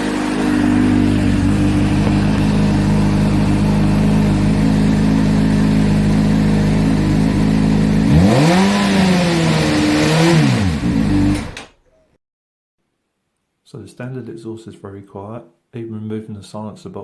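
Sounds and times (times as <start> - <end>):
motorcycle engine idling and revving: 0.0 - 11.7.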